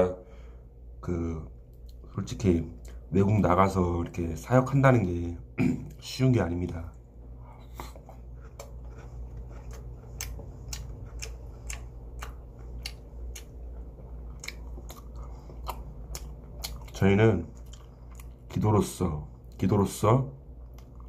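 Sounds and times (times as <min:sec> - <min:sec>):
low steady hum: 0:00.0 - 0:21.0
close-up chewing: 0:06.9 - 0:18.6.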